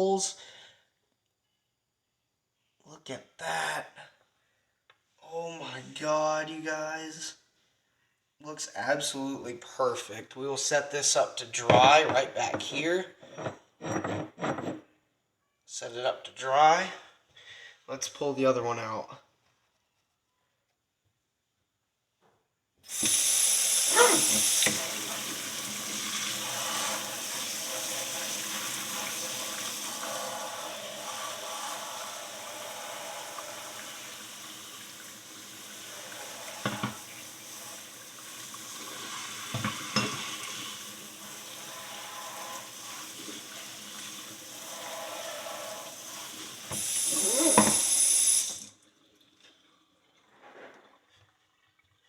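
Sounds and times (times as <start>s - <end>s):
water running from a tap: 22.9s - 52.0s.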